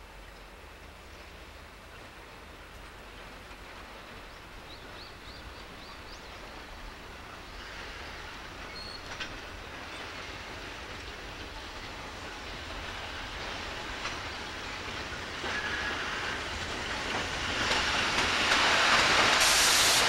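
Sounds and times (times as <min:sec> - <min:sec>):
freight wagons rumbling on rails: 0:00.1 - 0:20.0.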